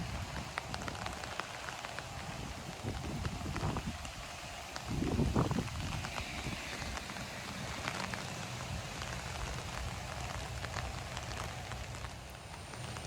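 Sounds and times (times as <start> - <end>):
heavy rain falling: 0.0 - 13.0
raindrops ticking close by: 0.0 - 13.0
low rumble: 4.9 - 12.3.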